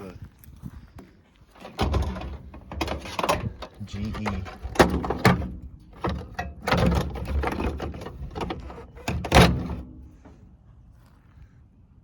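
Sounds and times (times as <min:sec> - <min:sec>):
rattling and knocking: 0:01.6 - 0:10.4.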